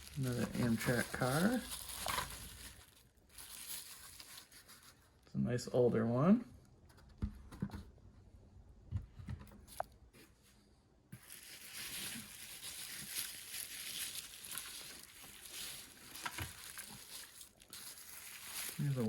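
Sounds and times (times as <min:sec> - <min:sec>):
bubble wrap crinkling: 0:00.0 - 0:05.2, 0:11.2 - 0:19.0.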